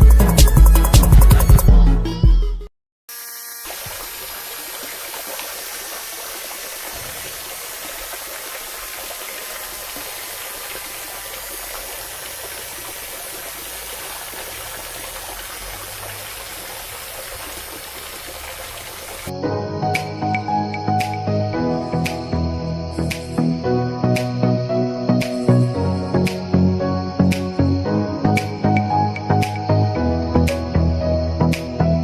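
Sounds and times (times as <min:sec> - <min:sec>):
water gushing: 0:03.6 - 0:19.3.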